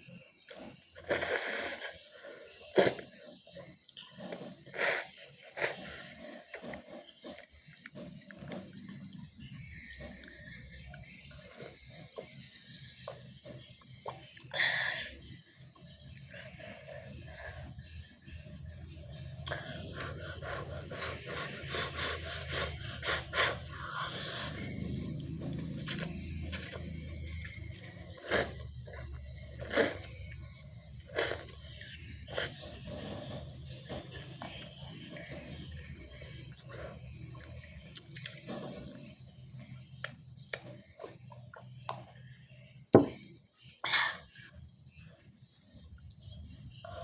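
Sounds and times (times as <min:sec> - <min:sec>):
steady low hum: 0:00.0 - 0:47.0
person slurping noodles: 0:00.5 - 0:03.6, 0:04.2 - 0:09.2, 0:19.4 - 0:26.8, 0:28.1 - 0:30.2, 0:31.0 - 0:31.6, 0:32.2 - 0:37.0.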